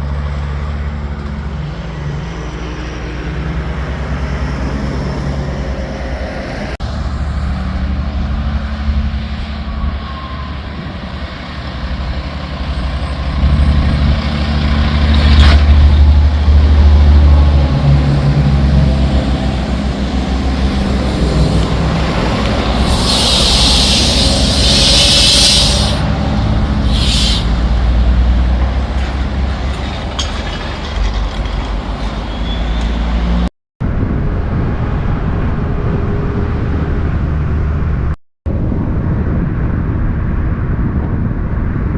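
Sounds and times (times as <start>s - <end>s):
diesel truck engines rumbling: 0.0s - 38.2s
short hiss: 22.6s - 26.1s, 26.8s - 27.8s.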